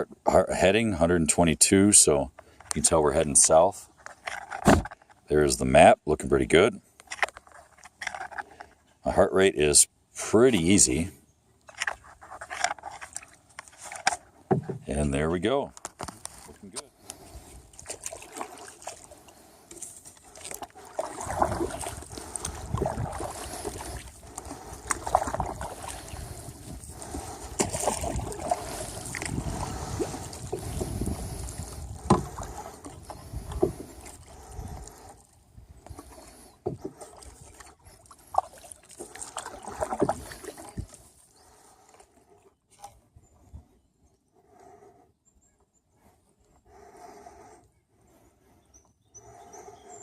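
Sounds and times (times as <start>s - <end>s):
paddle strokes in water: 16.2s - 43.0s.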